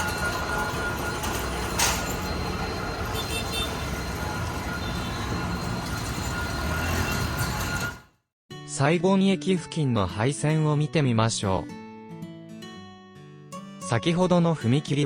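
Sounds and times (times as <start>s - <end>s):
train rolling over level crossing: 0.0s - 8.1s.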